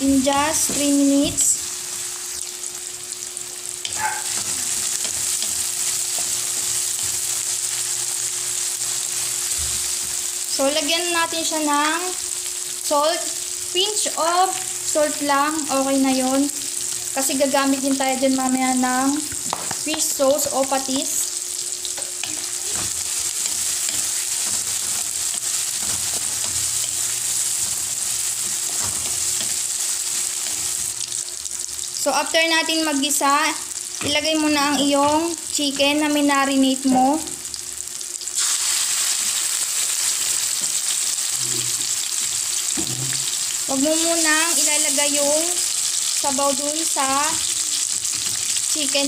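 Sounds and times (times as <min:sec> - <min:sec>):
food sizzling in hot oil: 0:00.0 - 0:49.0
spatula scraping and tapping pan: 0:21.9 - 0:30.9.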